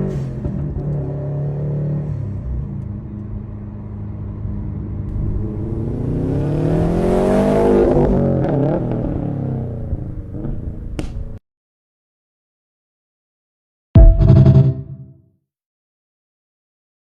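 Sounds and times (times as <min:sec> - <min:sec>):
car exhaust engine revving: 0:05.1 - 0:10.1.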